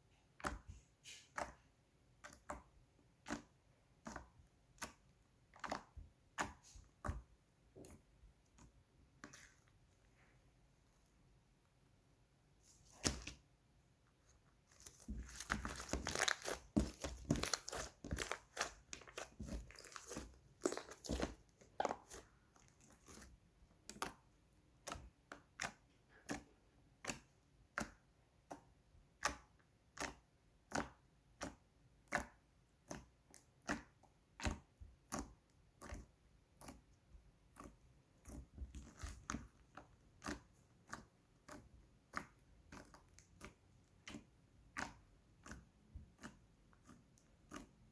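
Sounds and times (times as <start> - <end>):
slime crackling and popping: 14.8 - 22.2.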